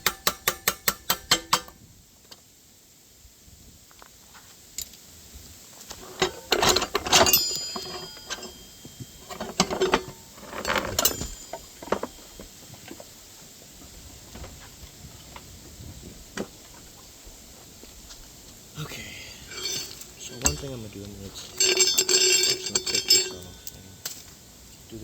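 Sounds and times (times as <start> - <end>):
metal parts clattering and clinking: 6.0 - 12.4, 19.4 - 24.2.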